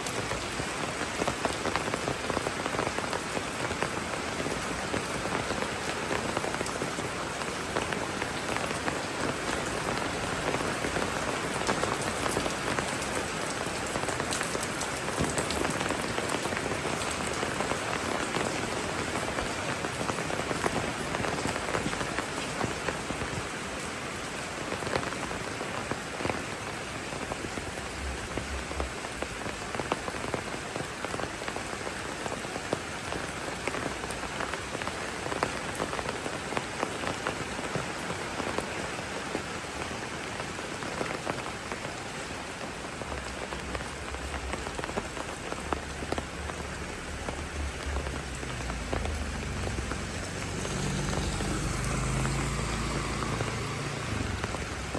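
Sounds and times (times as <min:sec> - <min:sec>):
rain hissing: 0:00.0 - 0:54.9
raindrops ticking close by: 0:00.0 - 0:54.9.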